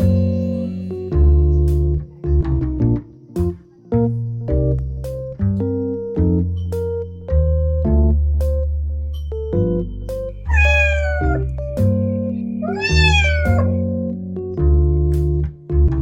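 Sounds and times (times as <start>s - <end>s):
cat meowing: 10.5s - 11.5s, 12.6s - 13.8s.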